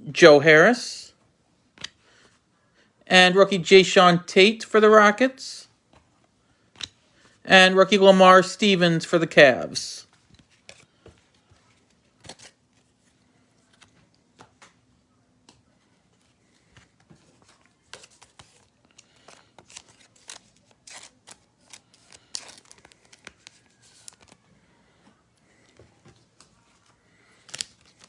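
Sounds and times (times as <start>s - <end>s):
trading cards being handled: 10.0s - 24.5s, 25.1s - 28.0s.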